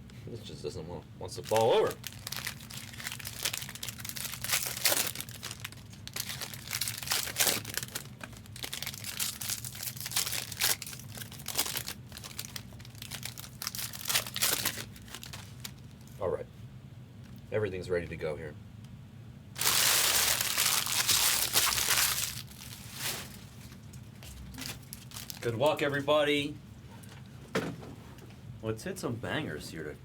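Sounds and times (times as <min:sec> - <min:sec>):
plastic wrappers crinkling: 0:01.4 - 0:16.2, 0:19.6 - 0:25.8.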